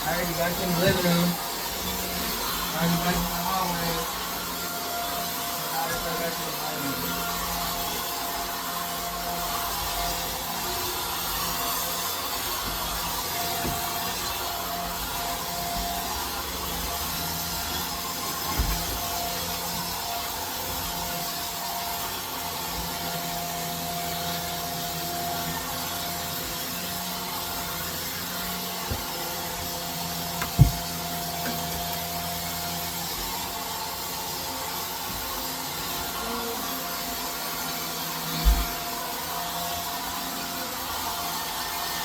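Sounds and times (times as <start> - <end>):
vacuum cleaner whining: 0.0 - 42.0
knock: 30.4 - 31.6.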